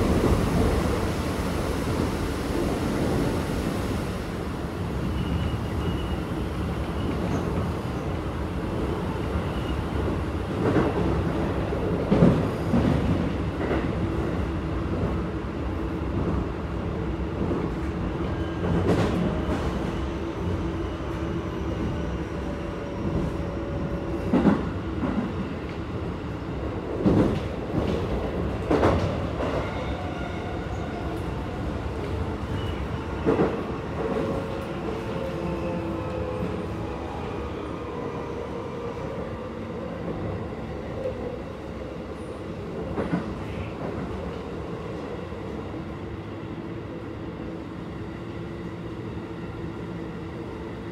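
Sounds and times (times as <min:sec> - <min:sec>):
train wheels rumbling on track: 0:00.0 - 0:50.9.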